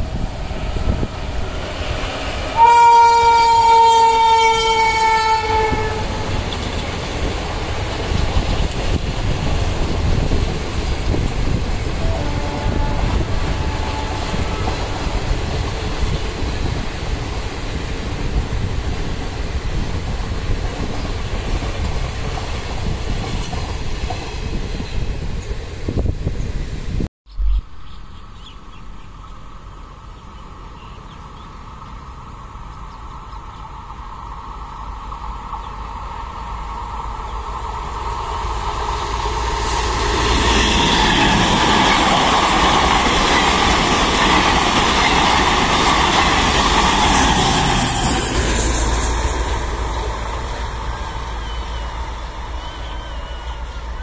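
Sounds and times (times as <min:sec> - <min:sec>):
train running noise: 0:00.0 - 0:27.1, 0:27.7 - 0:54.0
train horn blast: 0:02.5 - 0:06.4, 0:11.9 - 0:14.9.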